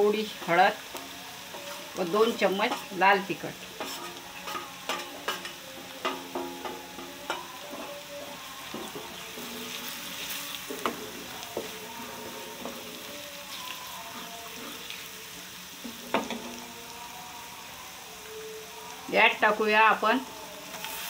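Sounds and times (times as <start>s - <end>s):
spices sizzling in hot oil: 0.0s - 21.0s
steel spoon clinking and scraping pan: 0.4s - 3.0s, 3.7s - 7.9s.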